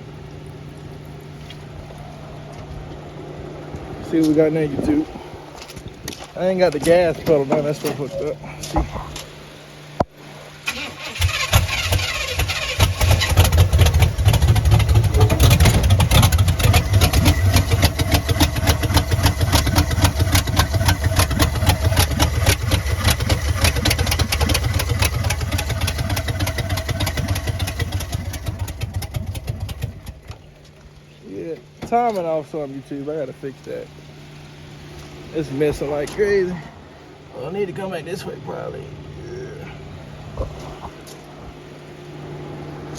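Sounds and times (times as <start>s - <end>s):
engine cranking and running rough: 0.0s - 42.9s.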